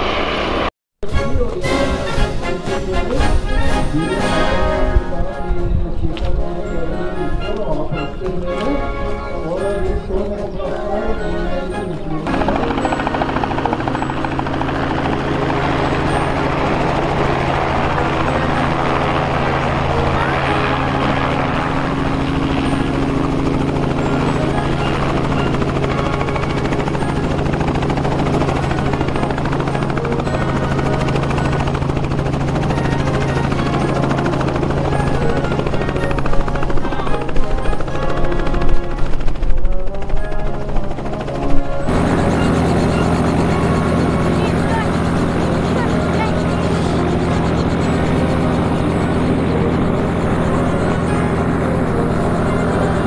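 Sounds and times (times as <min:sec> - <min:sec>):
helicopter rotor drone: 0:00.0 - 0:53.0.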